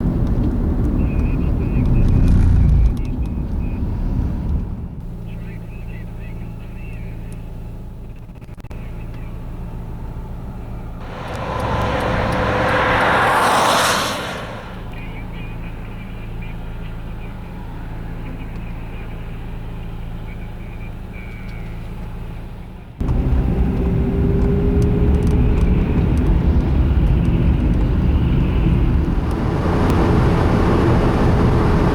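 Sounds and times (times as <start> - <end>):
highway traffic and wind rumble: 0.0 - 5.0, 9.4 - 15.8, 23.0 - 31.9
vehicle engine humming: 0.0 - 31.9
vehicle passing hiss: 11.0 - 15.2, 29.0 - 31.9.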